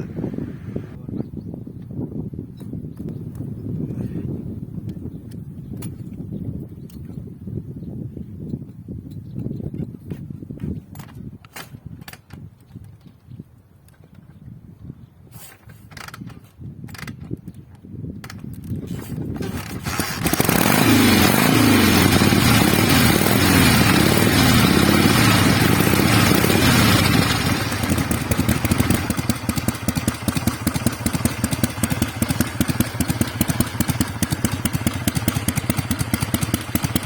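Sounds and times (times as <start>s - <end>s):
motorcycle engine idling: 19.3s - 37.0s
motorcycle engine revving: 19.3s - 37.0s.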